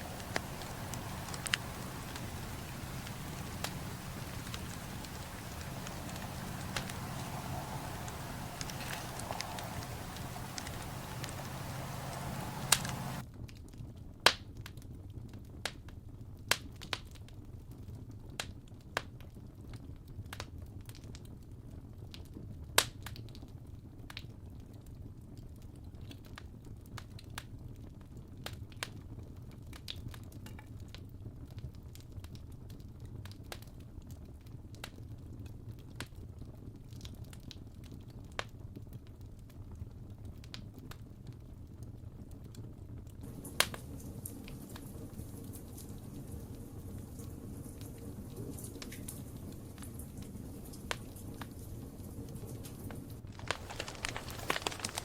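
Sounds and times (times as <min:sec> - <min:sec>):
campfire crackling and popping: 0:00.0 - 0:13.2, 0:43.2 - 0:51.4, 0:53.2 - 0:55.0
low rumble of burning wood: 0:00.0 - 0:13.2, 0:42.5 - 0:55.0.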